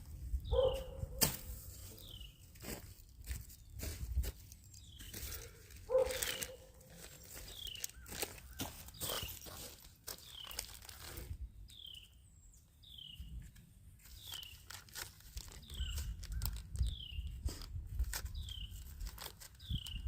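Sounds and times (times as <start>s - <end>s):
bird chirping: 0.4s - 1.1s, 1.8s - 2.5s, 4.5s - 10.8s, 11.6s - 14.8s, 15.5s - 17.4s, 18.3s - 18.9s, 19.5s - 20.0s
clicks and crunches: 3.2s - 11.8s, 14.0s - 20.0s.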